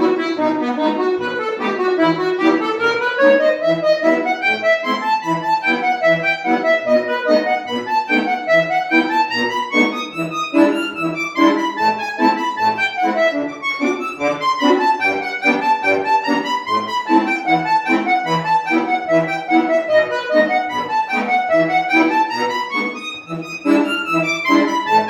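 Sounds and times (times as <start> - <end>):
solo accordion folk song: 0.0 - 25.0.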